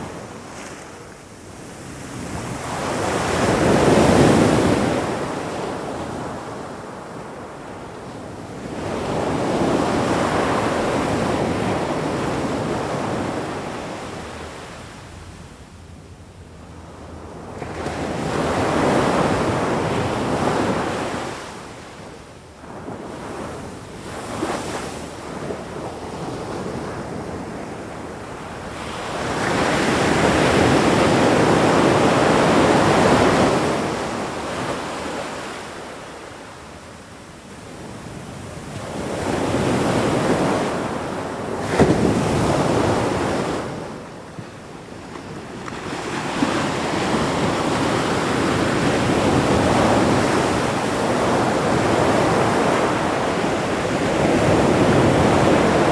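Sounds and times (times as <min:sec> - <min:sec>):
ocean waves breaking on shore: 0:22.8 - 0:55.9.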